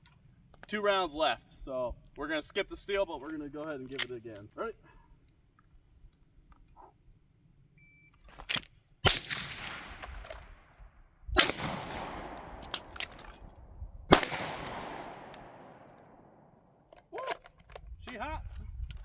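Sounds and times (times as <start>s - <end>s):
gunshots echoing: 9.0s - 10.6s, 11.4s - 16.5s.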